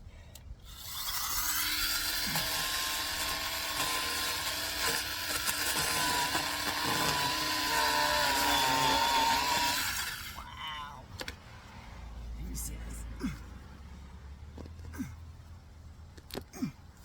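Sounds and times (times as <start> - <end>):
chainsaw cutting through root: 0.6 - 10.4.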